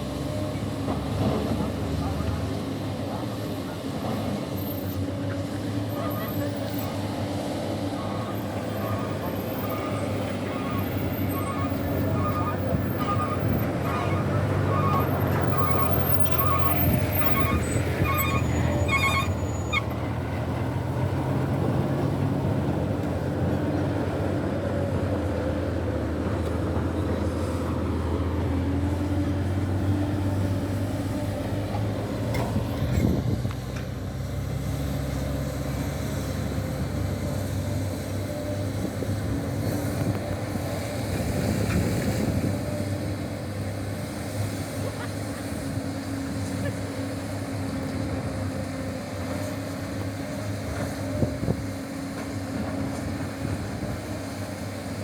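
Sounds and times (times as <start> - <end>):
diesel engine under load: 0.0 - 55.0.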